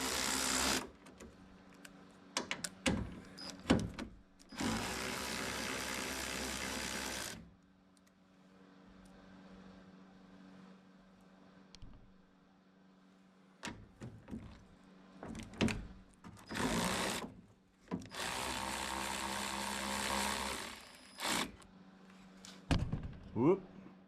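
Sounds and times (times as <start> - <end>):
handheld power tool running: 0.0 - 0.9, 16.5 - 17.2, 18.1 - 21.6.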